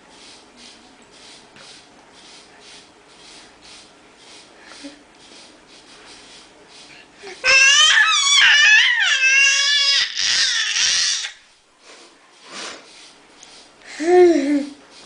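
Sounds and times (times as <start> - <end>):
baby screaming playfully: 7.4 - 11.4.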